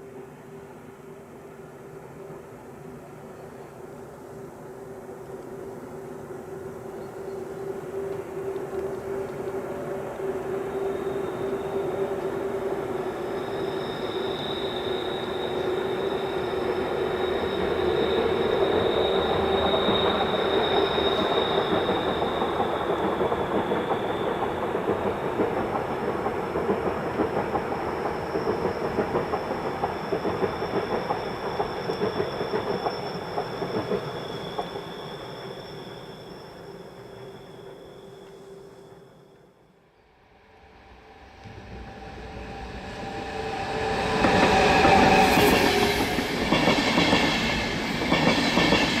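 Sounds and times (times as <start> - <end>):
train wheels clattering: 13.3 - 36.1, 42.9 - 49.0
high whine: 36.6 - 46.5.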